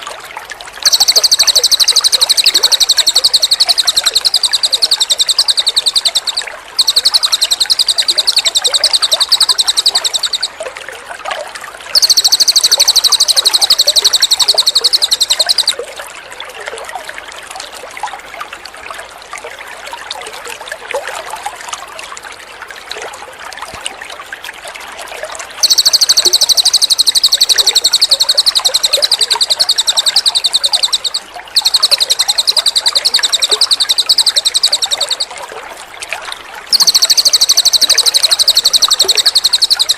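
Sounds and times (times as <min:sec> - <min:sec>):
water trickling: 0:00.0 - 0:39.9
bird rapid high trills: 0:00.8 - 0:10.6, 0:12.0 - 0:15.8, 0:25.6 - 0:35.4, 0:36.7 - 0:39.9.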